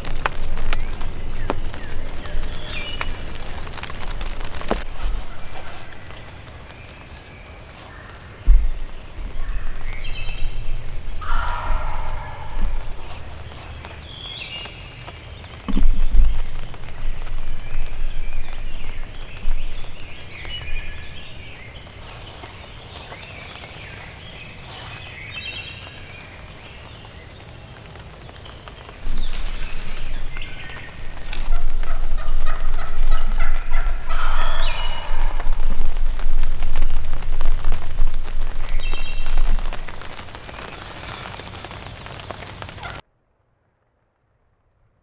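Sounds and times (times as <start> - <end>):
loud rustling: 0.0 - 14.7, 29.0 - 43.0
turkey gobbling: 10.5 - 14.0, 29.0 - 43.0.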